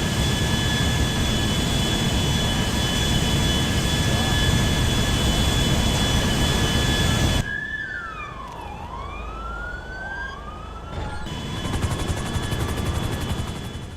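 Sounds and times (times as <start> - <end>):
jet engine whine: 0.0 - 13.9
siren-like sliding tones: 6.7 - 12.0.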